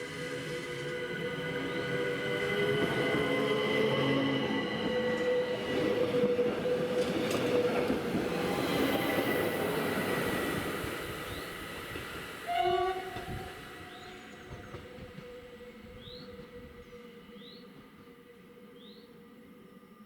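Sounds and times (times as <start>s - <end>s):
electric train running past: 0.0s - 20.0s
train horn blast: 12.4s - 16.2s.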